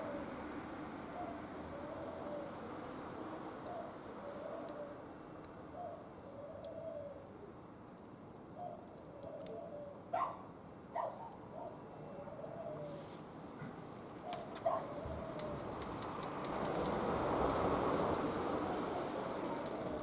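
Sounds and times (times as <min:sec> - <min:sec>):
low cooing calls: 0:00.0 - 0:00.4, 0:01.0 - 0:02.7, 0:03.6 - 0:05.1, 0:05.7 - 0:07.6, 0:08.5 - 0:10.4, 0:11.0 - 0:16.7, 0:18.6 - 0:20.0
wood fire crackling: 0:00.0 - 0:20.0.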